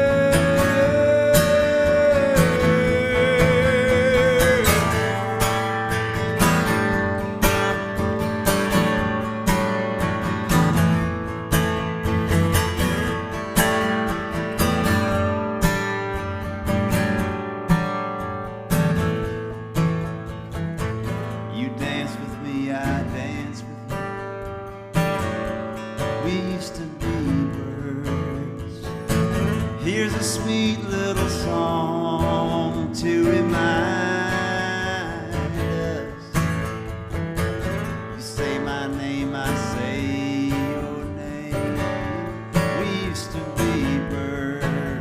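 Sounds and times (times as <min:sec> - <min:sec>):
acoustic guitar: 0:00.0 - 0:45.0.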